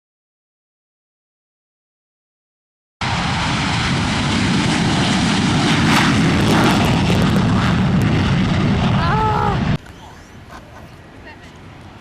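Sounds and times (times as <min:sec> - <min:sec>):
aircraft engine noise: 0:03.0 - 0:12.0.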